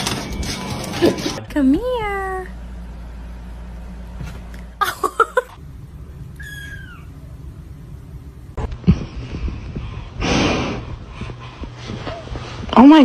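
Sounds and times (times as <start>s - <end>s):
low steady hum: 0.0s - 13.0s
cat meowing: 6.4s - 7.2s.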